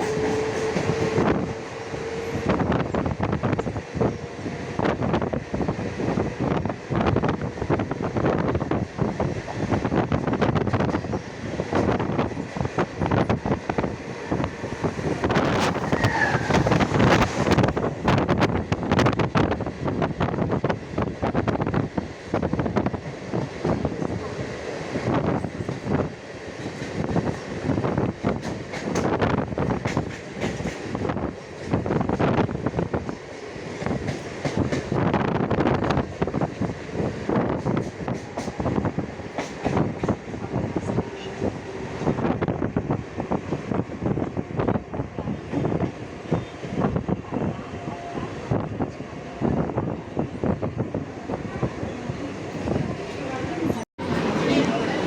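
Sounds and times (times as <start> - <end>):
train wheels clattering: 0.0 - 2.5, 25.3 - 32.2, 33.2 - 35.1, 37.4 - 41.4
high squeal: 15.7 - 17.3.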